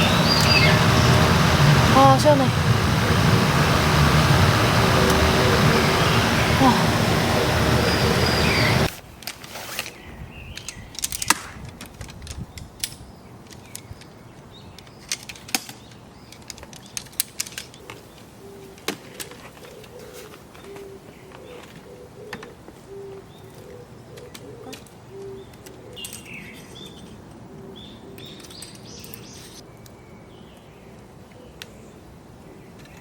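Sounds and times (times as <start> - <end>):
bird chirps: 0.0 - 8.9
dove cooing: 0.0 - 8.9, 19.3 - 25.4
loud steady rushing noise: 0.0 - 8.9.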